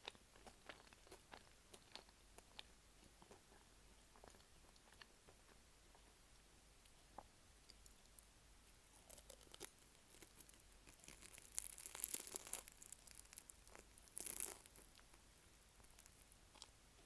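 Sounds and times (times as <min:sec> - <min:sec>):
flaky pastry crackling and tearing: 0:07.8 - 0:16.8.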